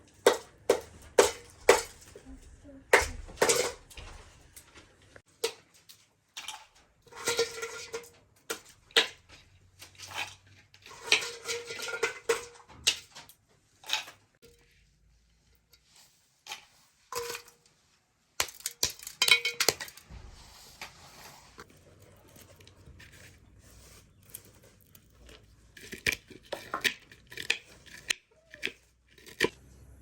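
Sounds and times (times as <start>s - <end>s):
pots and dishes clinking: 2.9s - 4.4s, 6.4s - 9.3s, 9.9s - 13.2s, 19.1s - 20.0s.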